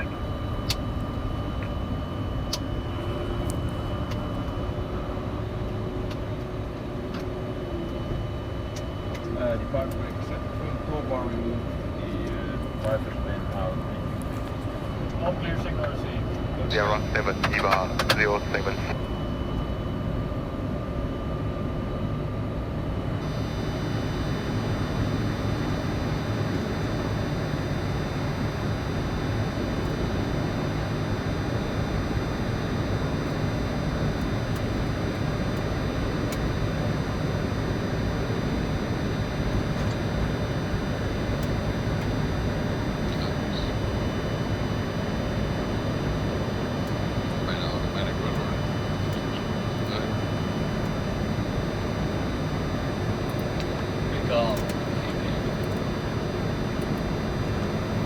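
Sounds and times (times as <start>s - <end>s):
aircraft engines idling: 0.0s - 21.8s, 23.0s - 58.0s
cockpit hum and hiss: 0.0s - 58.0s
faint steady whines: 0.0s - 58.0s
faint high steady tones: 7.6s - 20.2s, 23.2s - 58.0s.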